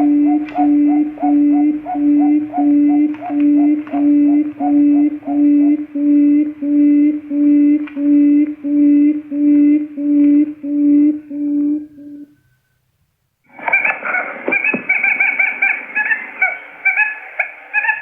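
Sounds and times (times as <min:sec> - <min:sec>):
quail call low hoots: 0:00.0 - 0:12.6.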